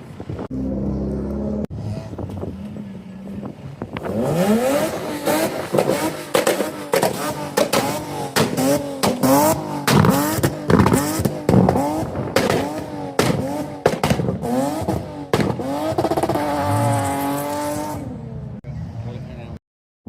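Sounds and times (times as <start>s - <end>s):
car engine revving: 0.0s - 19.0s
exhaust pops: 4.8s - 16.4s.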